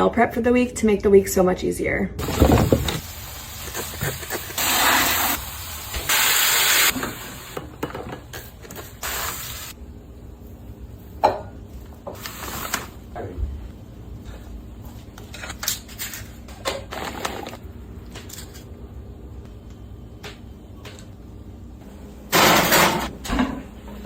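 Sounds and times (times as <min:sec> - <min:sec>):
short hissing bursts: 0:03.2 - 0:06.9.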